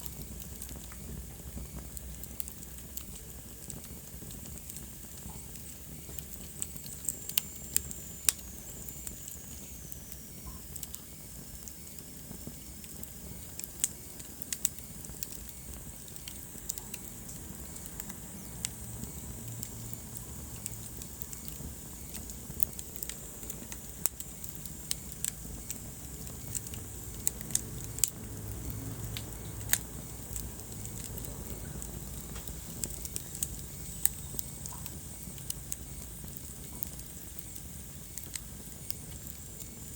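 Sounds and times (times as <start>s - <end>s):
fire crackling and popping: 0.0s - 39.9s
fire rumbling: 0.0s - 39.9s.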